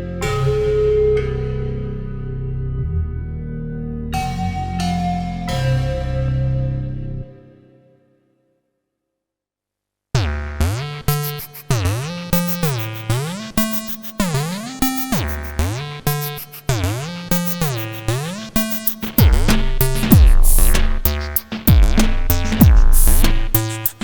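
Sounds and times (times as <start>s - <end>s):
drum machine low layer: 11.0s - 24.0s
sliding synthesizer sequence: 11.0s - 24.0s.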